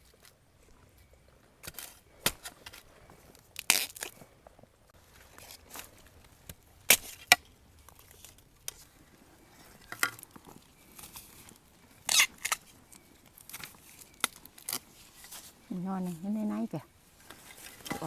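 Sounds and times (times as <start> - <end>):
dry plant matter snapping: 11.0 - 14.8.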